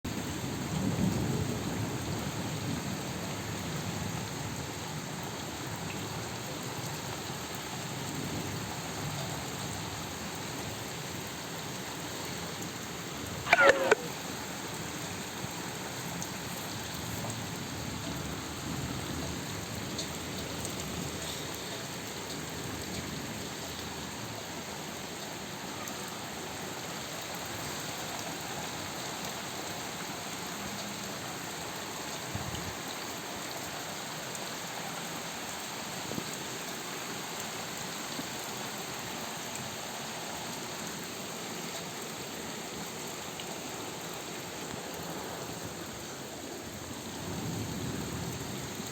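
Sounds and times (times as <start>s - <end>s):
heavy rain hissing: 0.3s - 30.0s, 40.9s - 48.9s.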